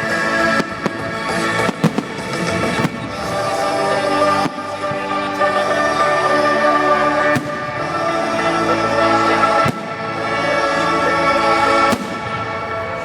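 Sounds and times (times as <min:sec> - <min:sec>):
music of sustained chords: 0:00.0 - 0:13.0
firework bangs: 0:00.5 - 0:03.6, 0:07.3 - 0:08.0, 0:11.8 - 0:13.0.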